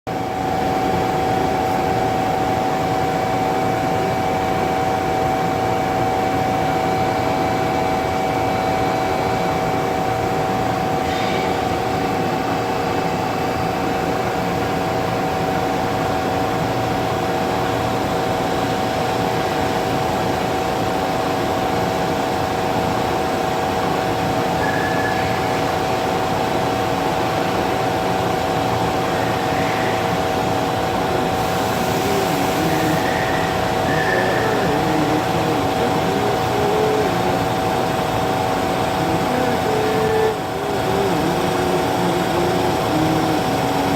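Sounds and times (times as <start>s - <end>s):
mechanical hum: 0.1s - 43.9s
metal lathe whining: 28.6s - 43.9s.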